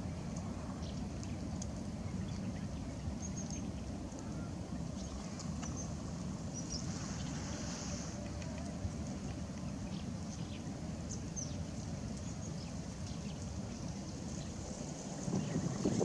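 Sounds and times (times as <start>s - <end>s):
steady low rumble: 8.8s - 16.0s.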